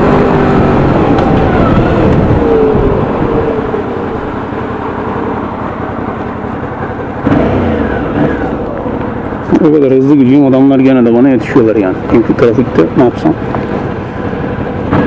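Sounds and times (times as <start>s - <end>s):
wind noise: 0.0s - 7.0s
motorcycle engine running: 0.0s - 15.0s.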